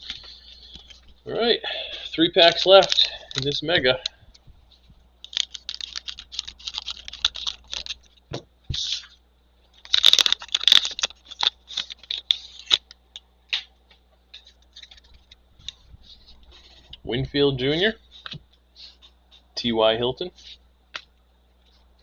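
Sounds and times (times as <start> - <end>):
foil card pack crinkling: 2.0 - 4.1, 5.2 - 8.2, 9.8 - 12.9, 14.4 - 16.8.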